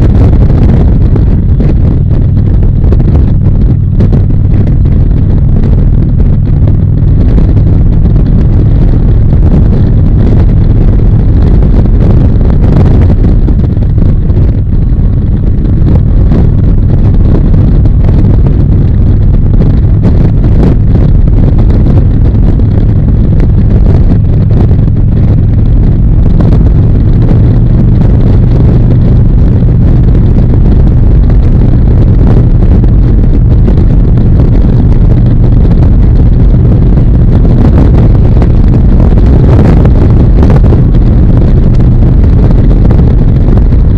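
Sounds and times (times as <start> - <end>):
motorcycle engine running: 0.0 - 43.9
wind buffeting microphone: 0.0 - 43.9.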